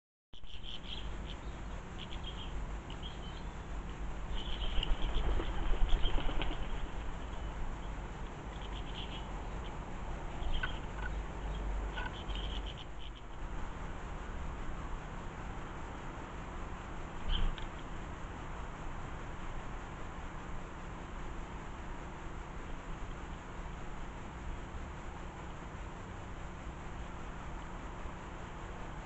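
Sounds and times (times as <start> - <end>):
small birds chirping: 0.4 - 13.4, 17.1 - 18.0.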